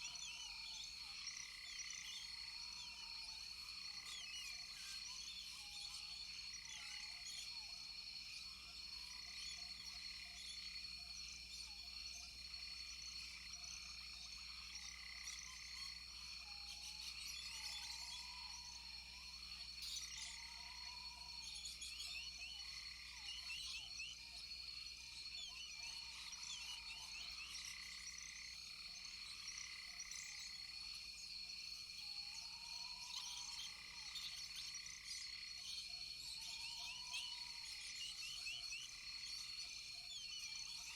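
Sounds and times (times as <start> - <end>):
high insect tone: 12.4 - 40.9.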